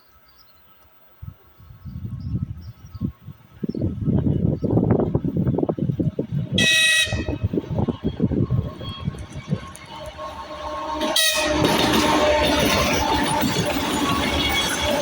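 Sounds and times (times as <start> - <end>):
locomotive rumbling: 2.3 - 15.0
locomotive horn blast: 6.5 - 13.1.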